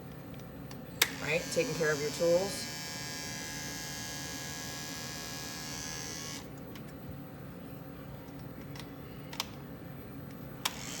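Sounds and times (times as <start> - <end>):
electric clipper buzzing: 1.0 - 6.5, 10.7 - 11.0.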